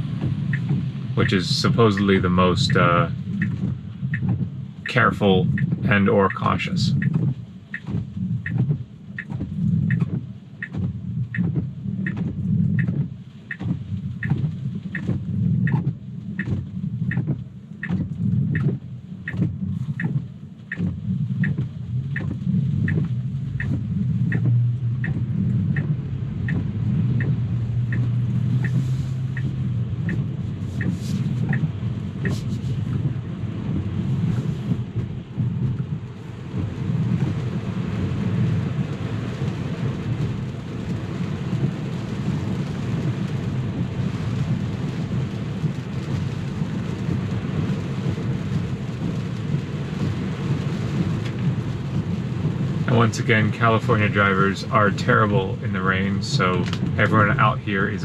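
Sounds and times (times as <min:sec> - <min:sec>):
regular ticking: 0:00.0 - 0:37.4
car road rumble: 0:00.0 - 0:58.0
tyre spray hiss: 0:32.2 - 0:33.0.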